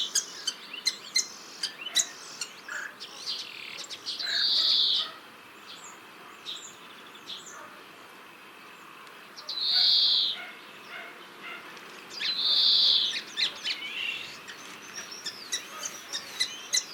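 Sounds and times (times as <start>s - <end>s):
greenfinch wheezy buzzing call: 0.0s - 3.0s, 3.7s - 5.2s, 9.5s - 16.9s
greenfinch chirps and twitter: 0.0s - 7.7s, 8.3s - 16.9s.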